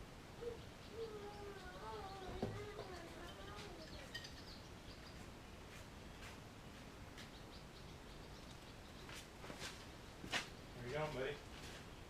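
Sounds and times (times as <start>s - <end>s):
faint high chirps: 0.4s - 5.3s.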